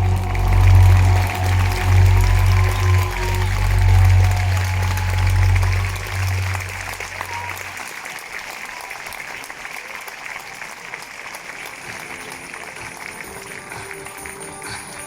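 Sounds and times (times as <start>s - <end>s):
background music bass: 0.0s - 7.5s
crowd applauding: 0.0s - 15.0s.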